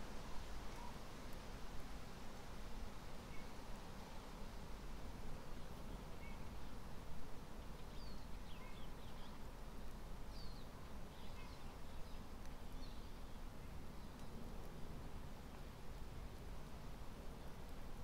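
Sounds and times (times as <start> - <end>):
faint bird chirps: 6.0 - 6.6, 7.8 - 9.4, 10.3 - 13.4.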